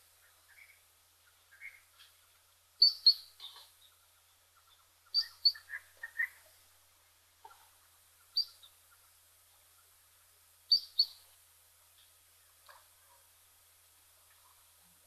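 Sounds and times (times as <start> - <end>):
bird chirping: 0.2 - 2.2, 2.8 - 6.6, 8.2 - 9.1, 10.7 - 11.3.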